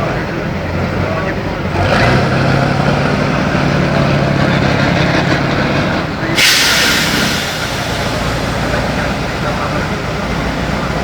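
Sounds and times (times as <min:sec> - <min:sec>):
diesel truck engine running: 0:00.0 - 0:11.0
compressed air hissing: 0:06.3 - 0:10.9.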